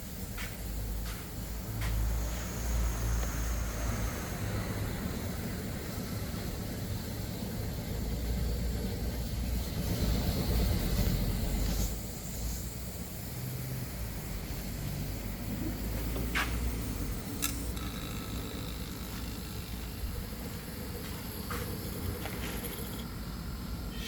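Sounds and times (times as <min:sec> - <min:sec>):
low mechanical rumble: 0:00.0 - 0:24.0
sharp clicks: 0:17.2 - 0:19.9.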